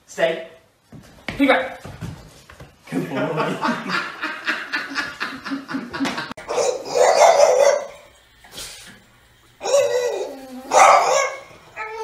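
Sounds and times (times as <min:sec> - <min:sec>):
person laughing: 0:02.9 - 0:06.4
small dog barking: 0:06.5 - 0:08.0, 0:09.6 - 0:12.0
dog whining: 0:09.6 - 0:12.0.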